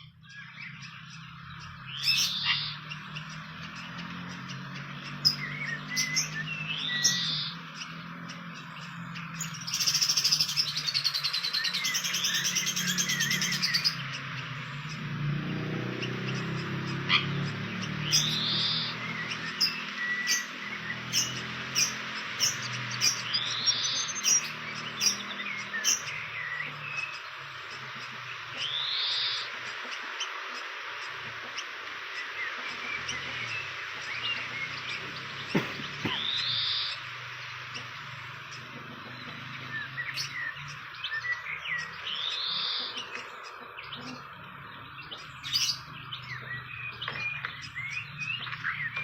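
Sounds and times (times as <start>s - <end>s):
birds whistling: 0.0s - 49.0s
sharp bird chip notes: 0.0s - 49.0s
loud buzz: 32.2s - 40.3s.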